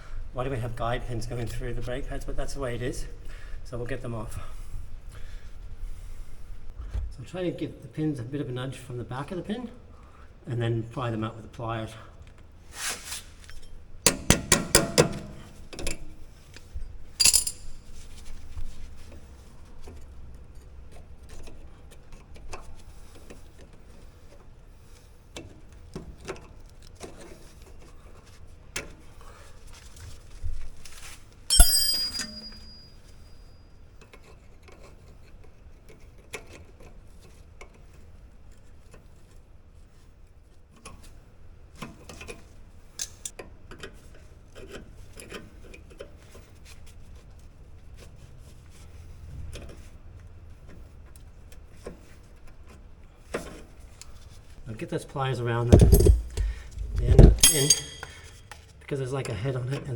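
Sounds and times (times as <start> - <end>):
loud metallic clink with ring: 17.2 - 17.7, 31.5 - 33.4, 57.4 - 58.4
metal tools clinking and tapping: 17.2 - 17.8, 31.5 - 33.2, 55.7 - 58.6.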